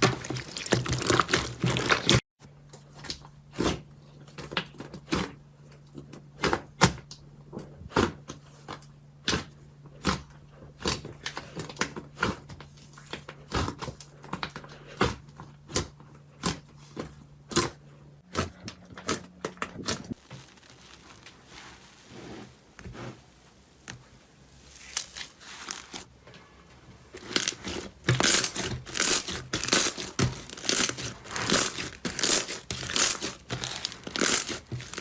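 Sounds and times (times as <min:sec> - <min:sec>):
soft slime crackling: 0:20.1 - 0:26.1.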